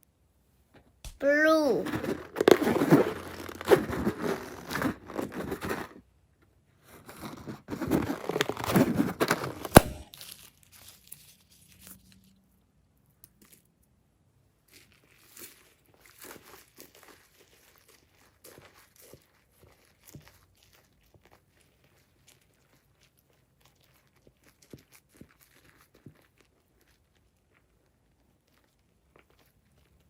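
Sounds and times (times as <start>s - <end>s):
rubber balloon crinkling: 1.1s - 6.0s, 6.8s - 11.8s
balloon snapping: 9.4s - 10.1s.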